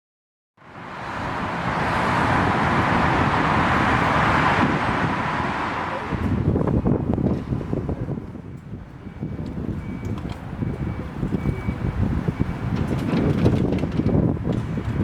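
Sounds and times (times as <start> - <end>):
exhaust crackle and rumble: 0.7 - 15.0
sports car roaring by: 0.8 - 7.8.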